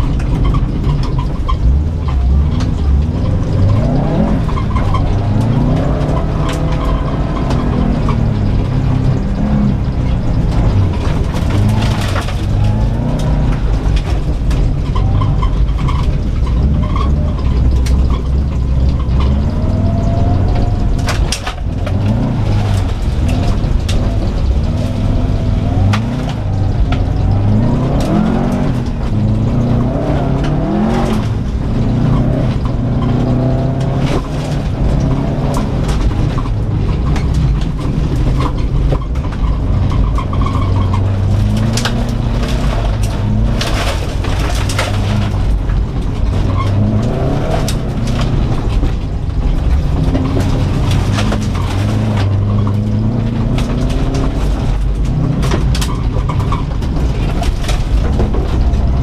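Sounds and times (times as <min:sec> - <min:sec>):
car engine revving: 0:00.0 - 0:59.0
stones clattering against car body: 0:10.0 - 0:19.7, 0:30.4 - 0:59.0.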